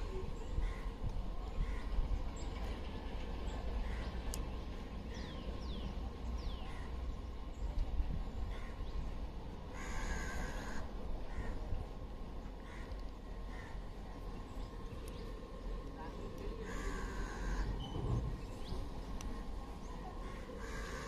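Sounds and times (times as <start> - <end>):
steady low rumble: 0.0 - 21.0
birds chirping: 12.6 - 21.0.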